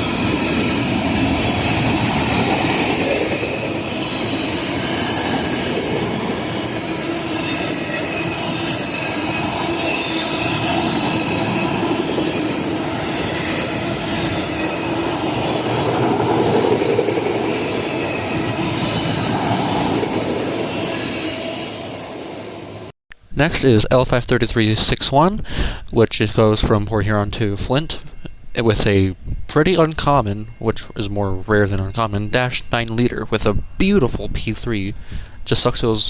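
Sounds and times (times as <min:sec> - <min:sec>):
thin wheel squeal: 0:00.0 - 0:22.8
train wheels rumbling on rails: 0:00.0 - 0:23.8, 0:26.1 - 0:36.0.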